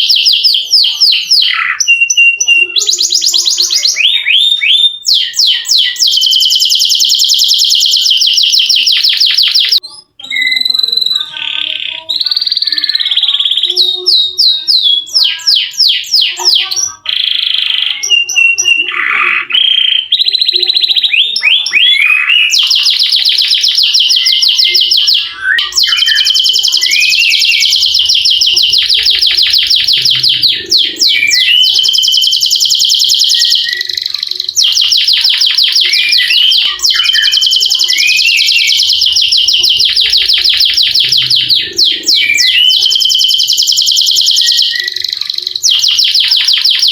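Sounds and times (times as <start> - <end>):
canary singing: 0.0 - 46.9.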